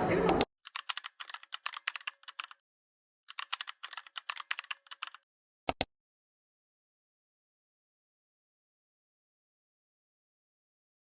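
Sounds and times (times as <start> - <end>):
keyboard key clicks: 0.3 - 2.6, 3.3 - 5.9.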